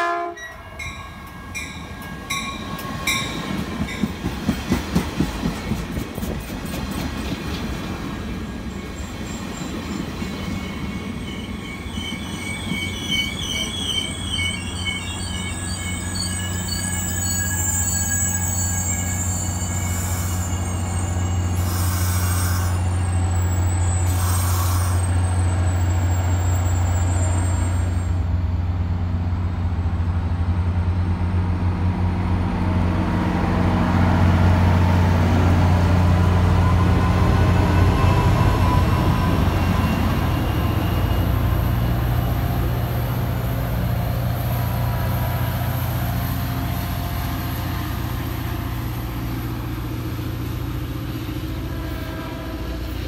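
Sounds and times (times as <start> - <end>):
diesel locomotive drone: 0.0 - 53.0
train cars rolling on rails: 0.5 - 53.0
wheel squeal: 8.6 - 28.2.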